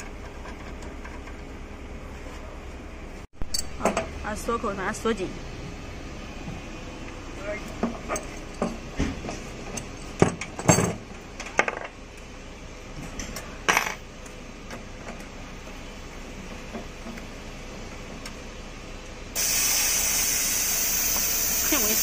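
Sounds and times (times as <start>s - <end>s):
loud steady hiss: 19.3s - 22.0s.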